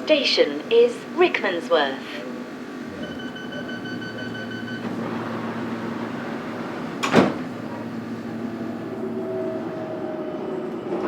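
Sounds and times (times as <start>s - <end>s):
train hum inside carriage: 0.0s - 11.0s
sharp clunk: 7.0s - 7.5s.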